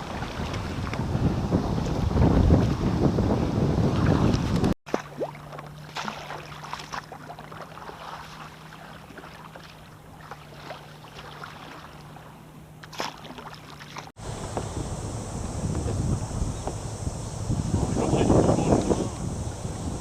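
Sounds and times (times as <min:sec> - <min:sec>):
kayak paddle splashes: 0:00.0 - 0:03.0, 0:03.9 - 0:20.0
wind noise on microphone: 0:00.0 - 0:04.8, 0:14.2 - 0:20.0.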